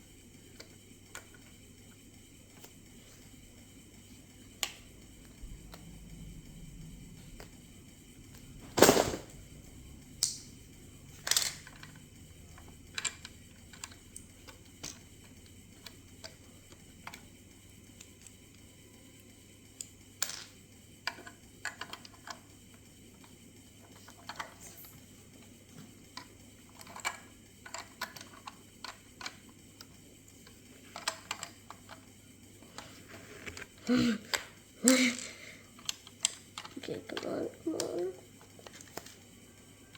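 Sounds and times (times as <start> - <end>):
plastic bricks clicking and rattling: 11.2 - 12.0, 12.6 - 15.1, 26.2 - 29.5, 30.9 - 32.0, 32.7 - 39.2.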